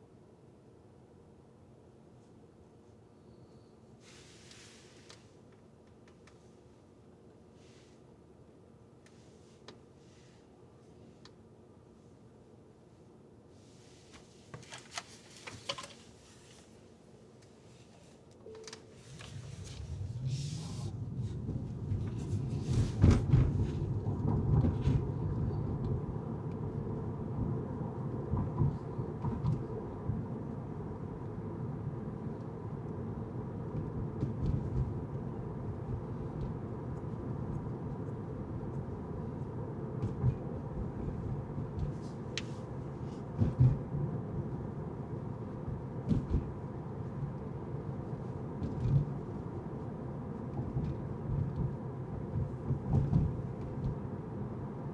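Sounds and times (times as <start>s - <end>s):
car road and engine rumble: 18.6s - 54.9s
car knocks and bumps: 21.2s - 26.0s, 33.8s - 36.8s, 40.0s - 42.4s, 43.2s - 44.5s, 45.5s - 49.6s, 50.4s - 54.2s.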